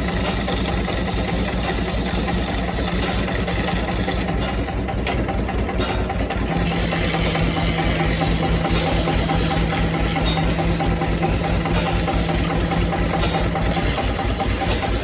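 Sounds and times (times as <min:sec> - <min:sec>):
wood lathe motor hum: 0:00.0 - 0:04.4, 0:06.2 - 0:15.0.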